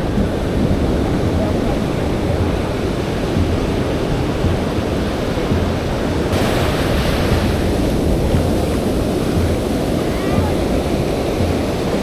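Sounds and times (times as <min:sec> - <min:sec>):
surf washing on beach: 0:00.0 - 0:12.0
wind rumble on microphone: 0:00.0 - 0:12.0
bright hiss: 0:06.3 - 0:10.2.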